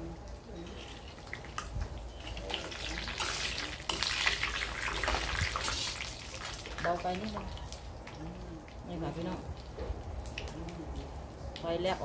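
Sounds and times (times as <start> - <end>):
pork skin sizzling in oil: 0.0 - 11.2
metal spatula stirring: 0.6 - 7.0.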